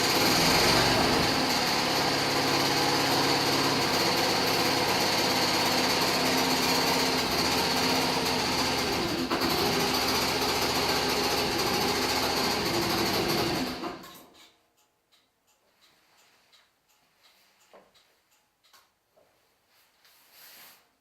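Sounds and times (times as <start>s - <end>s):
motorcycle engine running: 0.0s - 14.0s
mechanical engine noise: 0.0s - 14.1s.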